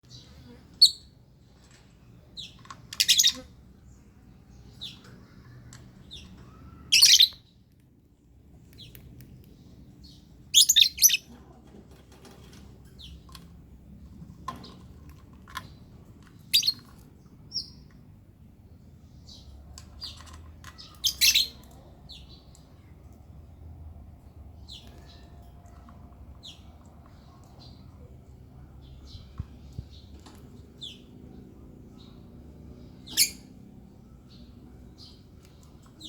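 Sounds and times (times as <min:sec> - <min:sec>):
lovebird high-pitched chirps: 0:00.8 - 0:01.1, 0:02.4 - 0:03.5, 0:06.1 - 0:07.4, 0:10.5 - 0:11.3, 0:16.5 - 0:16.8, 0:20.8 - 0:21.6, 0:33.0 - 0:33.6.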